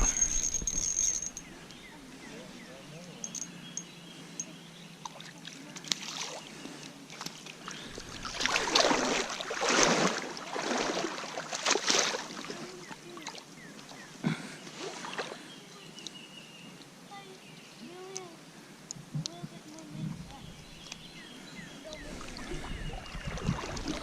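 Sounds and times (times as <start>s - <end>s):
water splashing: 5.0s - 14.0s, 21.8s - 24.0s.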